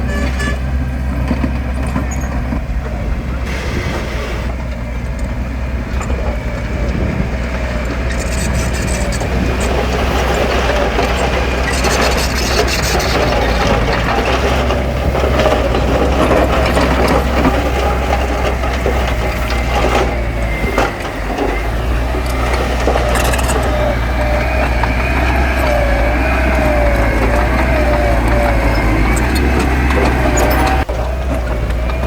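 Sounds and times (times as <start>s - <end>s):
heavy machinery engine drone: 0.0s - 32.0s
wavering squealing tones: 7.7s - 32.0s.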